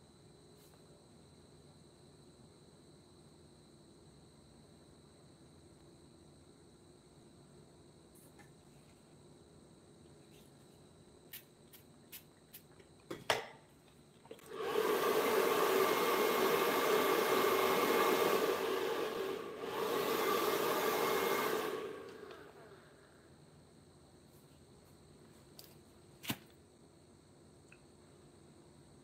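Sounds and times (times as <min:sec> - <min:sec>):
small electric blower motor: 0:14.5 - 0:23.0.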